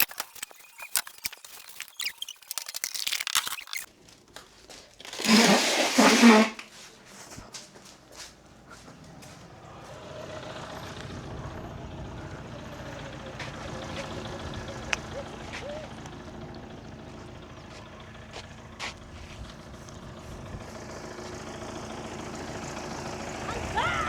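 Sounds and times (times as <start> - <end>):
car engine running: 7.9 - 24.0.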